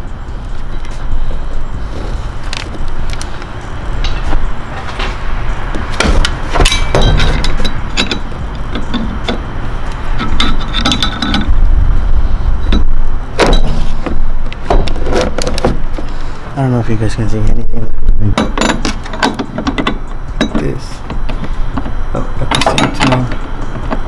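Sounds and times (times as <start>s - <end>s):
low rumble: 0.0s - 16.6s
hand tools clinking on metal: 2.5s - 11.5s, 18.3s - 24.0s.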